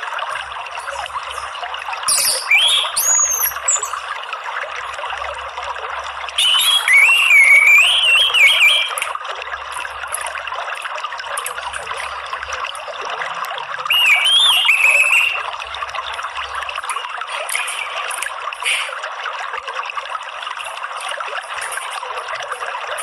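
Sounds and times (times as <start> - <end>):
running water trickling: 0.0 - 23.0
thrush singing warbling phrases: 13.9 - 15.4.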